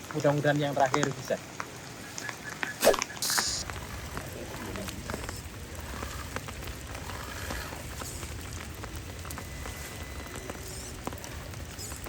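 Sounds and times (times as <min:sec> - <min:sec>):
steady rain: 0:00.0 - 0:12.0
low rumble: 0:03.6 - 0:12.0.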